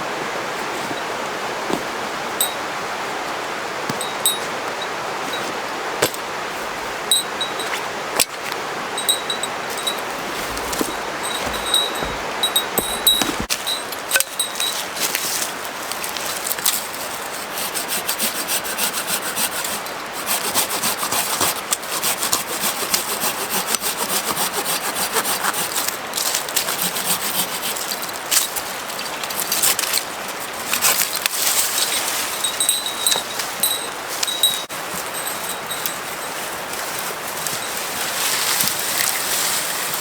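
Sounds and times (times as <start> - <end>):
hand saw cutting wood: 9.8 - 13.6, 16.8 - 28.4.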